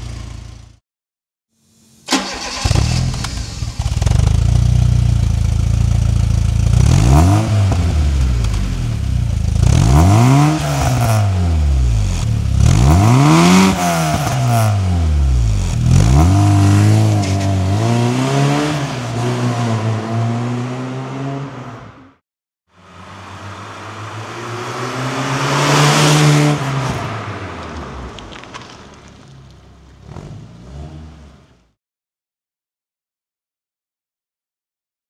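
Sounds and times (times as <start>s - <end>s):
car engine revving: 5.2s - 22.1s, 22.9s - 28.6s
car driving past: 22.8s - 29.3s.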